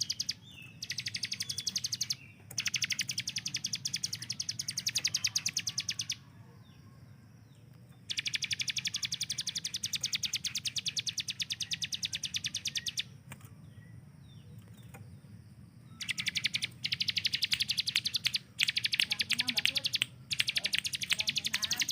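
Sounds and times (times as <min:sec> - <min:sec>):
bird rapid trill: 0:00.0 - 0:06.3, 0:08.0 - 0:13.2, 0:15.9 - 0:21.9.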